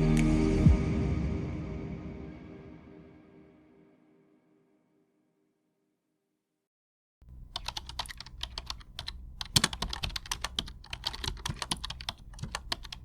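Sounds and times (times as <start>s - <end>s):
sharp clicks and taps: 7.3s - 13.0s.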